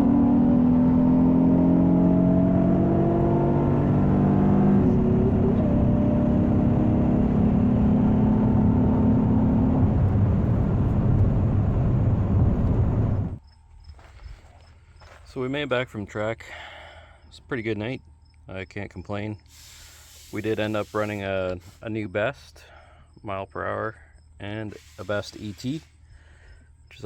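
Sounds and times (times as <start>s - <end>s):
car engine at full throttle: 0.0s - 13.4s
wind and road noise: 0.0s - 15.3s.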